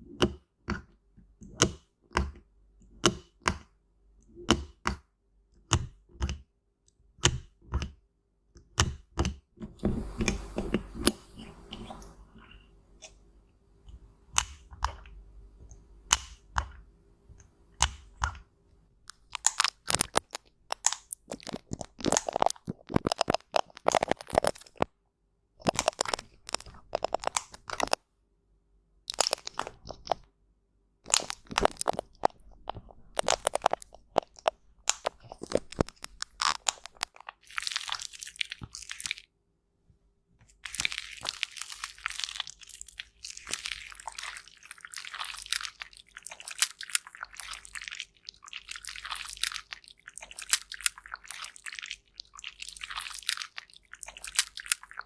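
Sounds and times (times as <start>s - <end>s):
cosmetics crunching and crackling: 19.1s - 24.9s, 25.6s - 28.0s, 29.1s - 30.3s, 31.0s - 39.3s, 40.5s - 55.0s.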